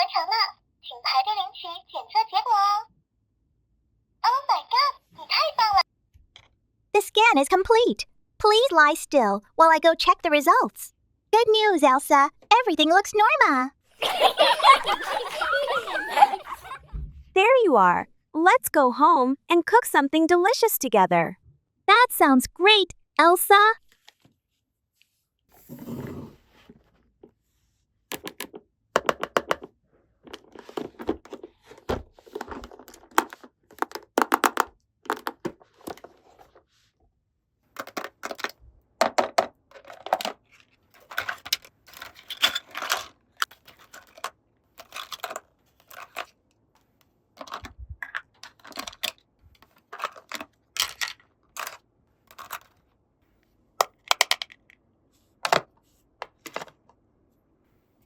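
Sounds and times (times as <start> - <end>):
plastic toy pieces clicking: 53.8 - 54.7.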